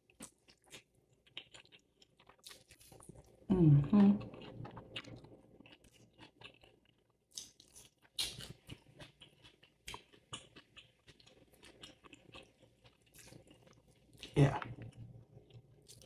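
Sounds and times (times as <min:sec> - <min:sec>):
person chewing wetly: 0:00.0 - 0:03.4, 0:04.2 - 0:16.0.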